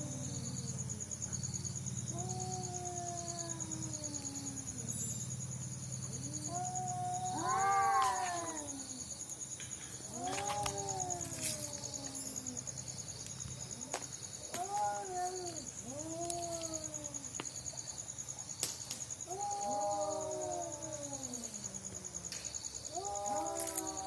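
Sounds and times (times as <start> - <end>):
cat yowling: 2.1 - 4.9, 6.2 - 8.8, 10.1 - 12.6, 14.5 - 17.2, 19.3 - 21.8, 22.9 - 24.0.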